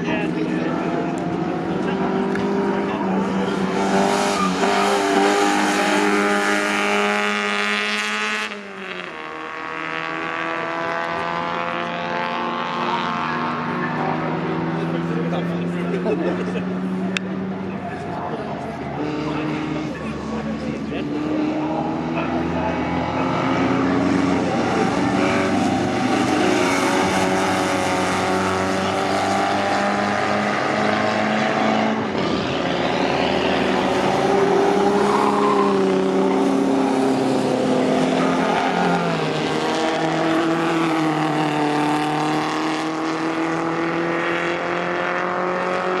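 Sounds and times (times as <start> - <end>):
racing car engines: 0.0 - 46.0.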